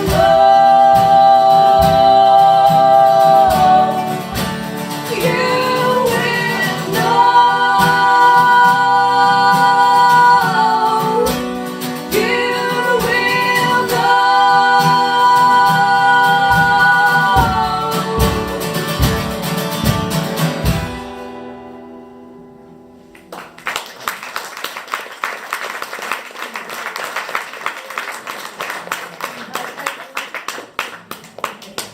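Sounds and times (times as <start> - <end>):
woman singing: 0.0 - 19.3
strummed acoustic guitar: 0.0 - 23.3
applause: 23.2 - 31.9.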